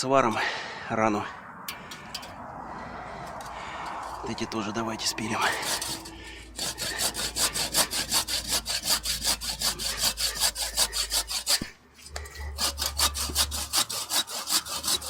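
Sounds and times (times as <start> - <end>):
hand saw cutting branch: 5.4 - 15.0.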